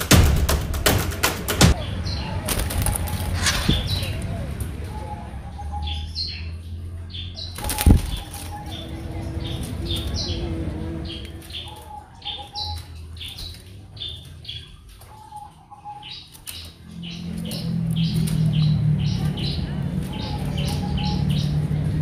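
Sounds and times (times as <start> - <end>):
sharp knock: 0.0 - 1.8
small birds chirping: 1.7 - 22.0
low hum: 6.6 - 13.1.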